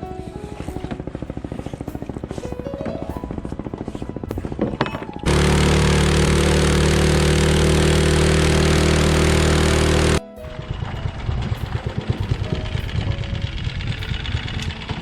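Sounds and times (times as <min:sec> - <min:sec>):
small boat engine chugging: 0:00.0 - 0:15.0.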